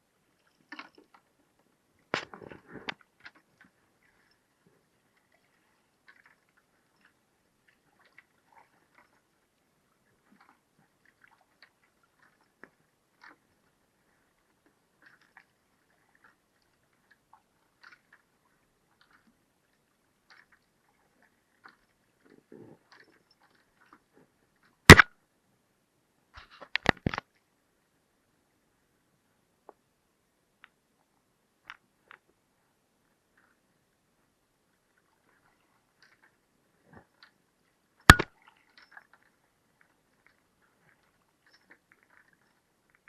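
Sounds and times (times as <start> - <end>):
faint small clicks: 10.3 - 13.5, 20.2 - 20.7, 26.4 - 27.5, 30.6 - 32.4, 34.9 - 43.0.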